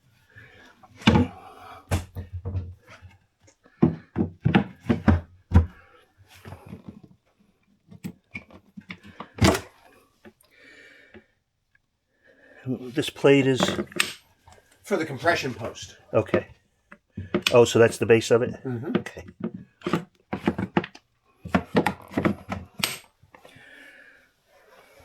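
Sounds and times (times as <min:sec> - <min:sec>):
hollow thumps and knocks: 0:00.9 - 0:07.2, 0:15.2 - 0:17.9, 0:18.5 - 0:23.2.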